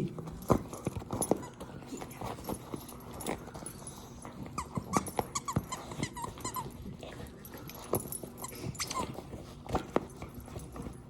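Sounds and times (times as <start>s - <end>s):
dog chewing toy: 0.0s - 11.0s
toy squeaks: 4.9s - 6.7s.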